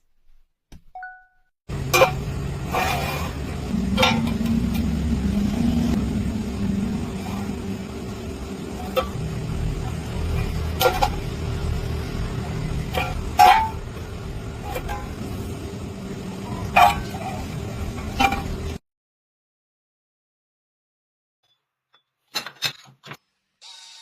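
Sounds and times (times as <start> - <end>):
workshop machinery humming: 1.7 - 18.8.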